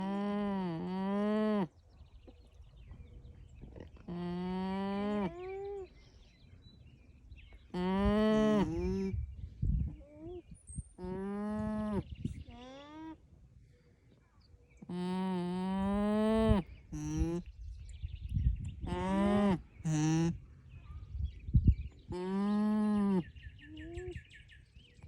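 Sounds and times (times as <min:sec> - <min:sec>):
alpacas humming: 0:07.7 - 0:09.2, 0:14.9 - 0:17.5, 0:18.8 - 0:20.4.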